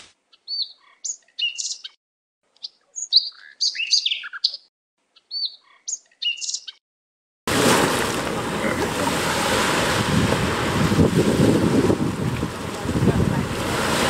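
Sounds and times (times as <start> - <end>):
songbird chirping and whistling: 0.3 - 2.0, 2.6 - 6.8.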